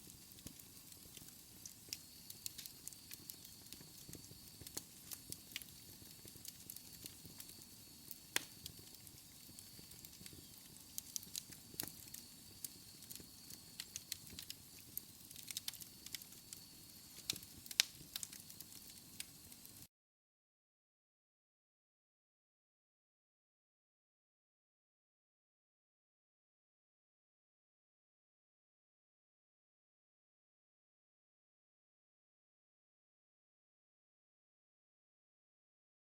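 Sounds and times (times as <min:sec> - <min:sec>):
wood fire crackling: 0:00.0 - 0:19.9.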